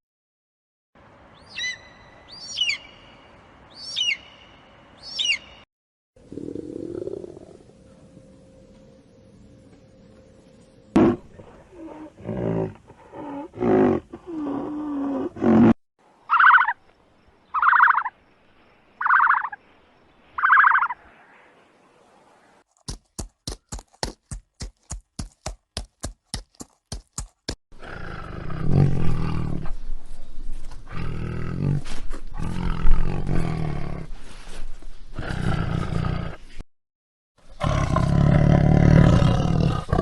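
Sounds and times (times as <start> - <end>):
rough roar-like animal call: 6.2 - 7.8, 37.6 - 40.0.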